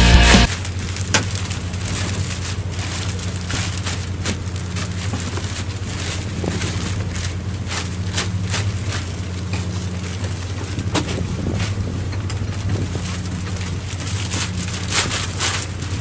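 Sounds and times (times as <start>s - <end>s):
background music: 0.0s - 0.5s
boat machinery drone: 0.0s - 16.0s.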